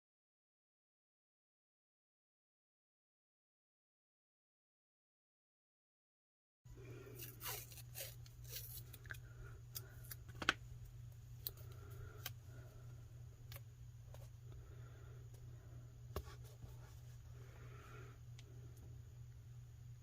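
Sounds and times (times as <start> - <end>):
steady low hum: 6.7 - 20.0.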